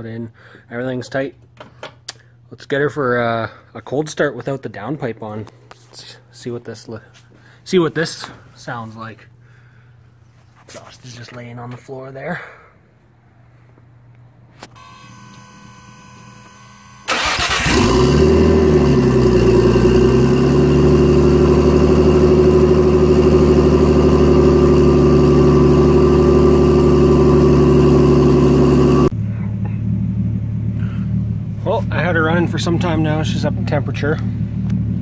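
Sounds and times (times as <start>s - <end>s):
turbocharged car engine starting and idling: 14.8s - 35.0s.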